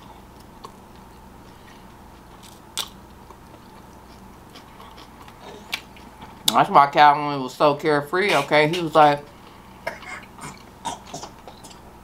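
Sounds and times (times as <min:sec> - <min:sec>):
soft mouth clicks chewing: 0:01.8 - 0:06.6.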